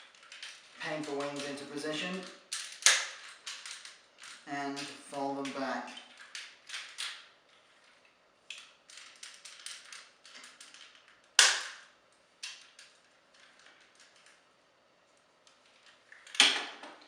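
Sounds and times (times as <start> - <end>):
sharp plastic snap: 2.6 - 3.2, 11.4 - 11.8.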